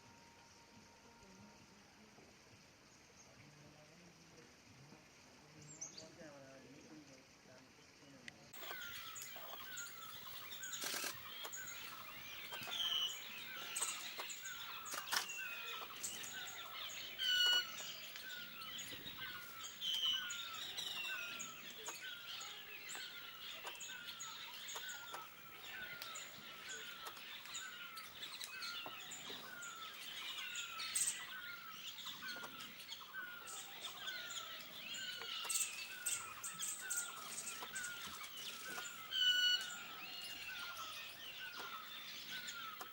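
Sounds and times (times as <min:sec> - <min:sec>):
birds calling and singing: 0:05.4 - 0:42.9.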